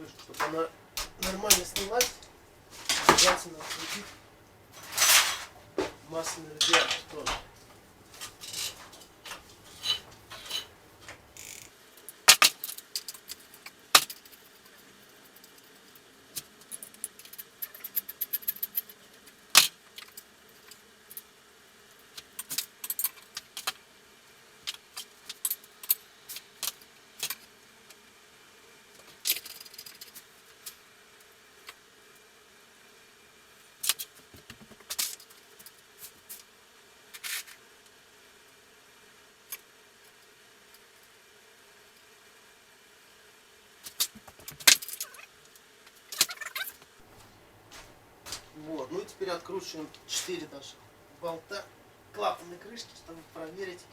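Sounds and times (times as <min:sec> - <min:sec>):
metal tools clinking: 0:00.0 - 0:11.3.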